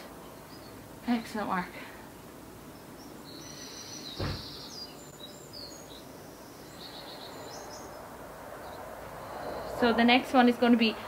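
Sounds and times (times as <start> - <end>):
outdoor background noise: 0.0 - 11.0
small birds chirping and trilling: 0.0 - 11.0
dull thump: 4.2 - 4.6.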